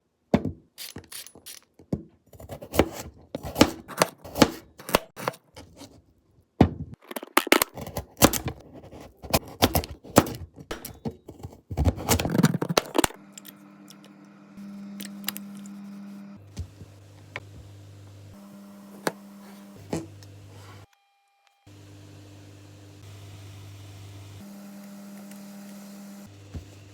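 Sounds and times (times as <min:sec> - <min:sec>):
knife chopping on cutting board: 0:02.4 - 0:05.4
kitchen appliance humming: 0:07.8 - 0:26.9.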